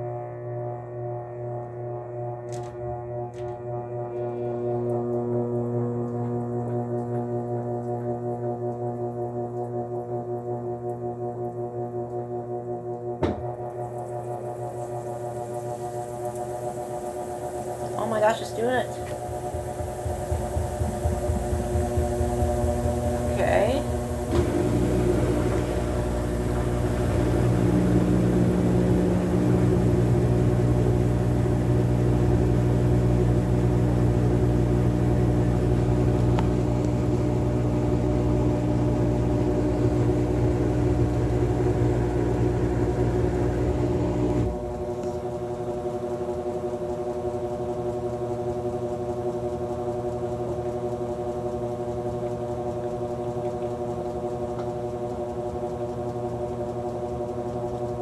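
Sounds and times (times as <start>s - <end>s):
washing machine motor hum: 0.0s - 58.0s
washing machine drum rumble: 13.1s - 55.3s.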